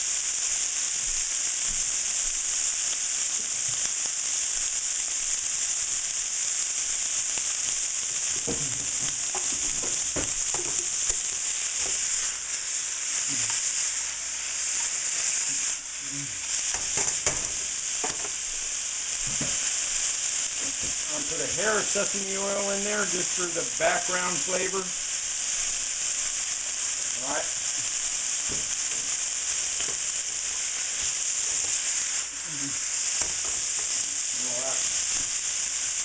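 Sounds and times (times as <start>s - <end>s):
chicken sizzling in hot oil: 0.0s - 36.0s
utensil scraping and knocking pan: 8.4s - 12.1s, 16.7s - 18.4s.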